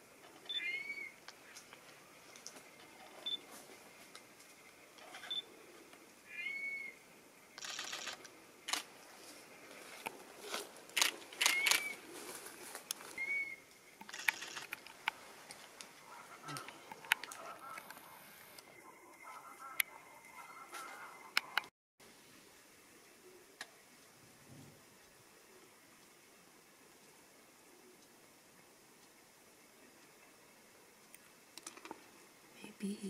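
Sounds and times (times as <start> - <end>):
whistled bird calls: 0.5 - 1.1, 6.3 - 7.0, 11.5 - 12.0, 13.2 - 13.6
sharp clicks: 7.6 - 8.9, 11.0 - 11.9, 13.7 - 15.2.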